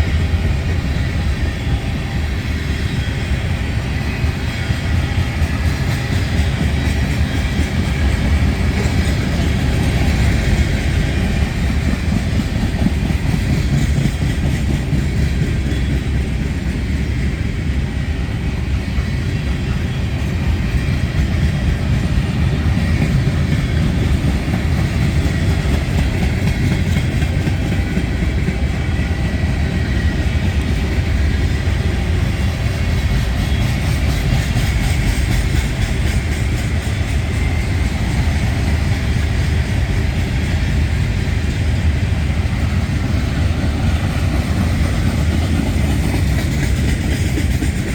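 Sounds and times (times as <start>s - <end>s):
train wheels rumbling on rails: 0.0s - 47.9s.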